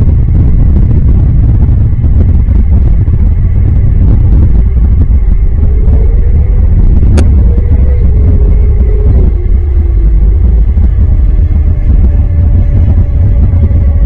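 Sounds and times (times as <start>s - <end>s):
faint droning tone: 0.0s - 14.0s
low rumble: 0.0s - 14.0s.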